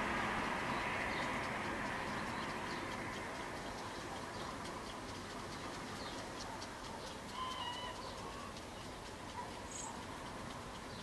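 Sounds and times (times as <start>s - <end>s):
low background noise: 0.0s - 11.0s
faint high chirps and ticks: 0.2s - 11.0s
bird call: 5.6s - 10.1s.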